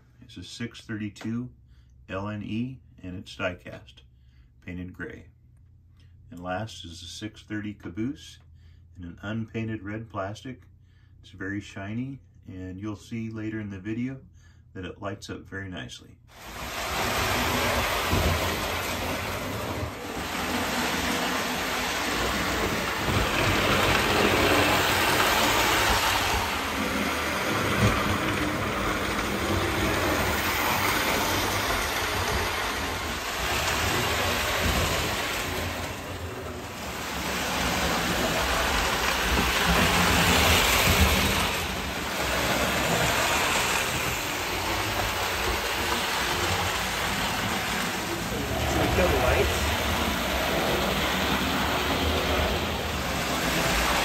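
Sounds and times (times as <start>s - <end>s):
toy train motor hum: 16.3s - 54.0s
wheels clattering on rails: 16.4s - 54.0s.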